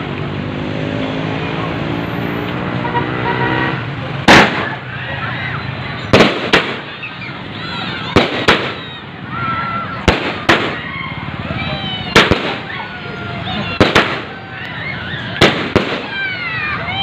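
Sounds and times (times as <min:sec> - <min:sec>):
firework bangs: 0:04.2 - 0:04.9, 0:06.1 - 0:07.0, 0:08.0 - 0:09.0, 0:10.0 - 0:10.9, 0:12.1 - 0:12.8, 0:13.7 - 0:14.5, 0:15.4 - 0:16.4.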